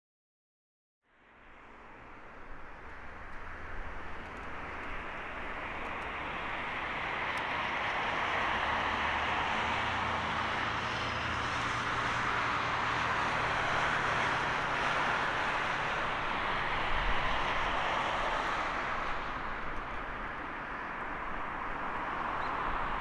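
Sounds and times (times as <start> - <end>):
jet engine roar at takeoff: 2.7 - 23.0.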